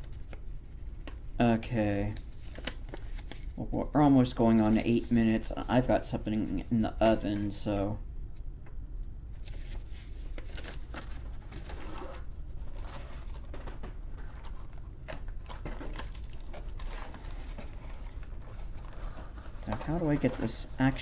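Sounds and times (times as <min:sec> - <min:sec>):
plastic and cardboard rustling: 0:00.0 - 0:03.6, 0:09.4 - 0:21.0.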